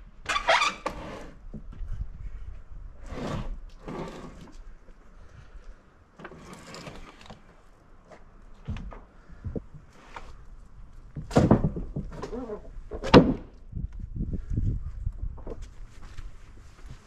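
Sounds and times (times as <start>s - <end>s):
wooden slabs scraping: 3.0s - 4.6s, 6.2s - 8.2s.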